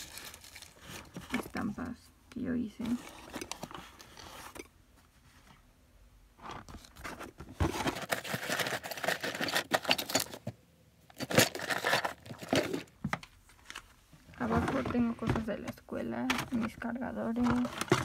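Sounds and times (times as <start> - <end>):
hands rummaging plastic pieces: 0.0 - 1.8, 6.7 - 10.5, 11.1 - 12.9, 16.3 - 18.0.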